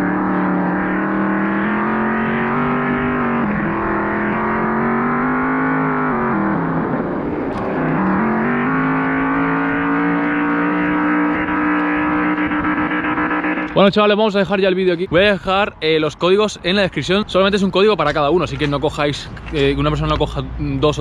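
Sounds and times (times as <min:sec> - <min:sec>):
simulated car engine revving: 0:00.0 - 0:13.8.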